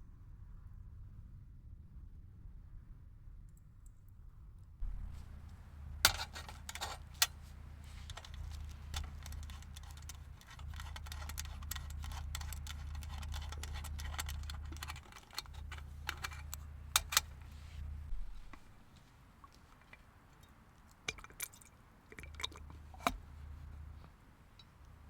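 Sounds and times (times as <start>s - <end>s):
steady low rumble: 4.8s - 18.9s.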